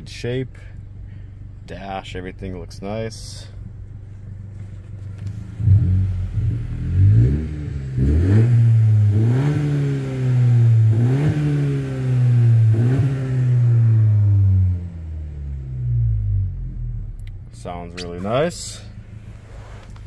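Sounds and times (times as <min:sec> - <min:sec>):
car engine revving: 0:04.1 - 0:20.0.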